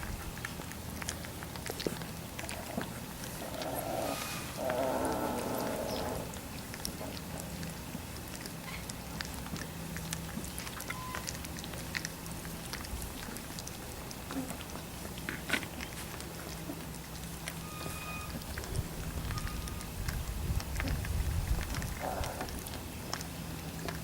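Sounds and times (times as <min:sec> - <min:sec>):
steady low hum: 0:00.0 - 0:24.0
puppies squeaking: 0:17.6 - 0:20.0.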